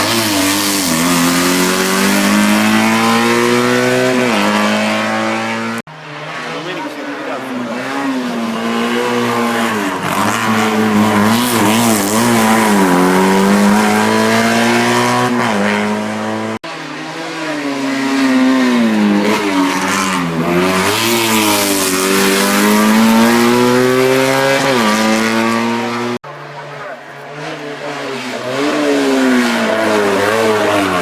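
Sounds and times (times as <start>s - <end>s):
race car engine accelerating: 0.0s - 31.0s.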